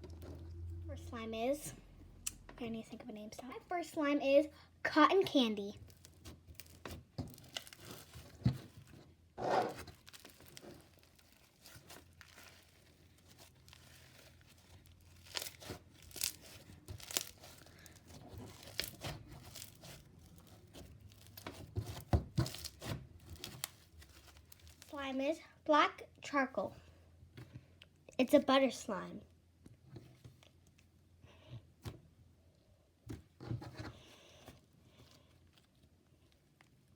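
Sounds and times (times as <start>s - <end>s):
slime squishing by hand: 5.3s - 25.3s.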